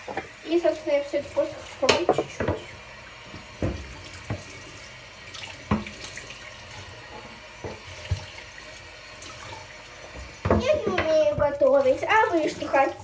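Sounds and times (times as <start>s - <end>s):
items knocking against sink: 0.0s - 0.4s, 1.7s - 4.7s, 5.6s - 6.2s, 6.8s - 8.5s, 10.0s - 11.6s
tap running into sink: 0.0s - 12.9s.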